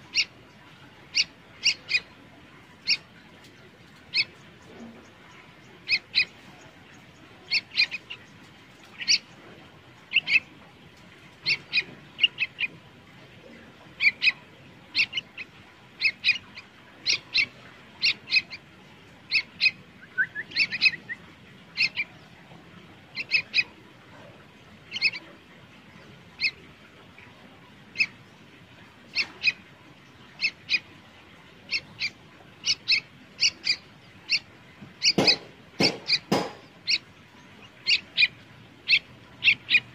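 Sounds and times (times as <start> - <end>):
bird chirping: 0.1 - 0.3, 1.1 - 2.1, 2.8 - 3.1, 4.1 - 9.4, 10.1 - 10.5, 14.0 - 18.6, 19.3 - 22.4, 23.1 - 23.8, 24.9 - 25.3, 26.4 - 26.6, 27.9 - 28.2, 29.1 - 30.9, 31.6 - 39.9.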